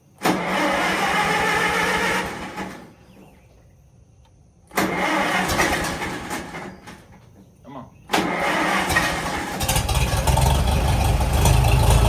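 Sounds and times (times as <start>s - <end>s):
tractor starter cranking engine: 0.2s - 3.0s, 4.7s - 7.2s, 8.1s - 12.0s.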